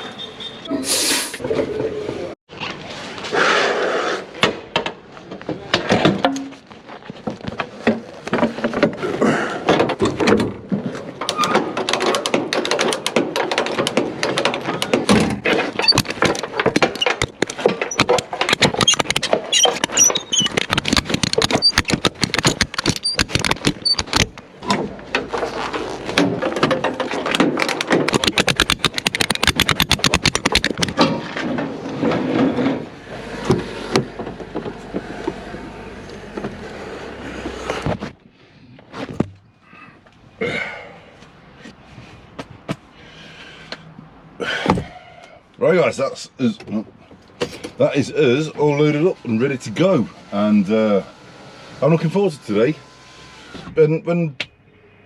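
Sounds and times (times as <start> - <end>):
knocks and rattles of loading: 4.4 - 35.4.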